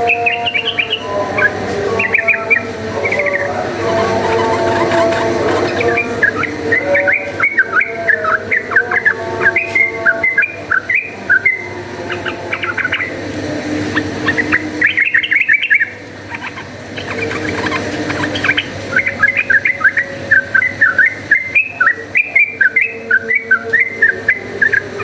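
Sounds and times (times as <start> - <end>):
bird singing whistled chirps: 0.0 - 13.1, 14.2 - 25.0.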